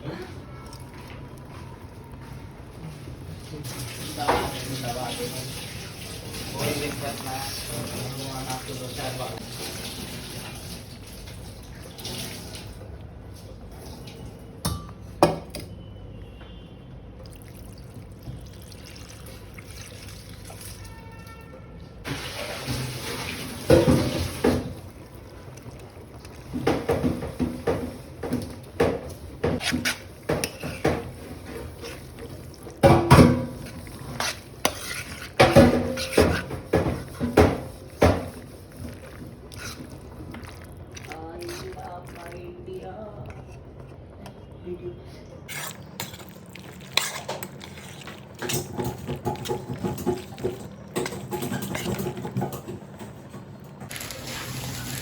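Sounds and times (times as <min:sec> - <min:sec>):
cookware and utensils clattering: 0:22.1 - 0:24.8, 0:26.4 - 0:42.2, 0:45.5 - 0:55.0.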